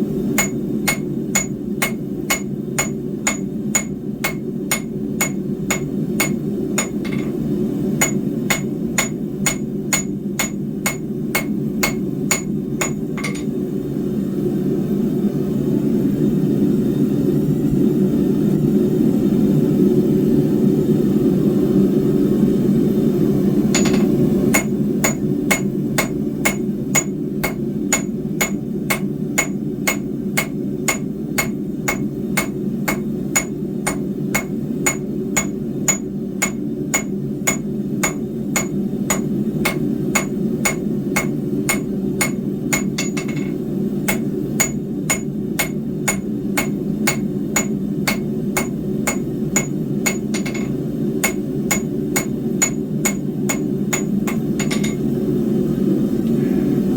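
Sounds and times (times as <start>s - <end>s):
low forge roar: 0.0s - 14.7s, 20.4s - 56.9s
hammer ringing on steel bar: 0.4s - 7.4s, 23.8s - 55.0s.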